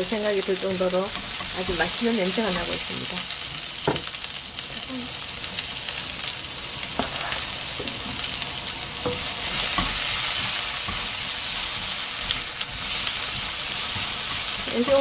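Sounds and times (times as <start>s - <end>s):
vegetables sizzling in a wok: 0.0s - 15.0s
spatula tapping: 9.0s - 15.0s.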